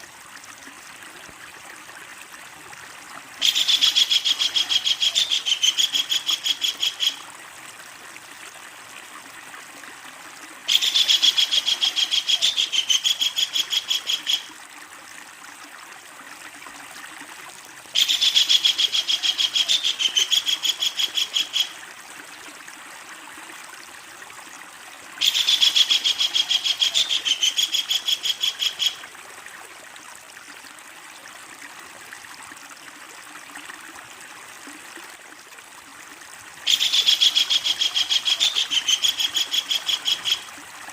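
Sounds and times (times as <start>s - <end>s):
kingfisher chattering call: 3.4s - 7.2s, 10.7s - 14.5s, 18.0s - 21.7s, 25.2s - 29.0s, 36.7s - 40.5s.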